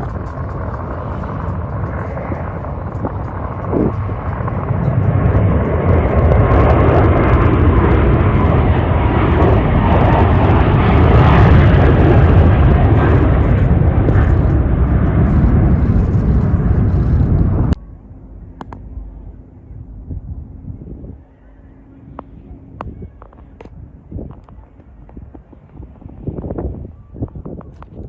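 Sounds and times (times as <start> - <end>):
jet engines running: 0.0 - 28.0.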